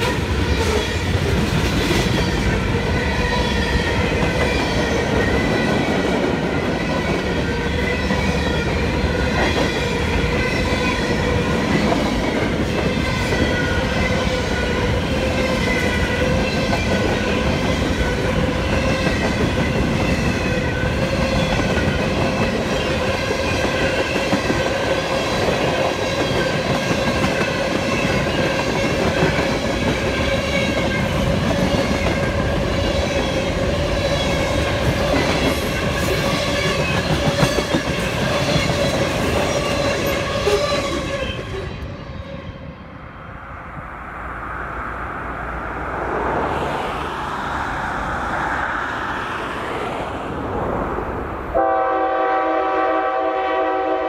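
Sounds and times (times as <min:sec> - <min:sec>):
train wheels rumbling on rails: 0:00.0 - 0:42.7.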